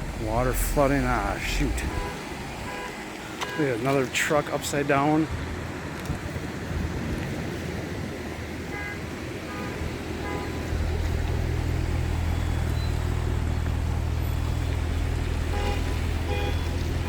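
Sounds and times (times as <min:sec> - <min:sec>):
vehicle alarm beeps: 0:01.4 - 0:04.0, 0:10.3 - 0:17.0
steady low rumble: 0:09.9 - 0:17.0.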